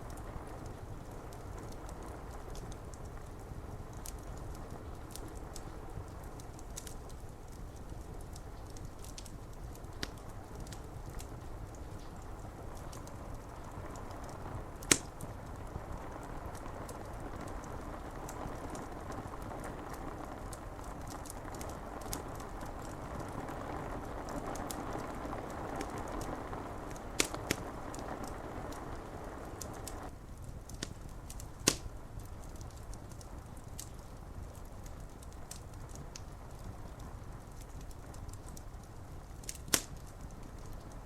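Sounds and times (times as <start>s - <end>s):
rain hissing: 0.0s - 30.2s
wood fire crackling and popping: 0.0s - 41.0s.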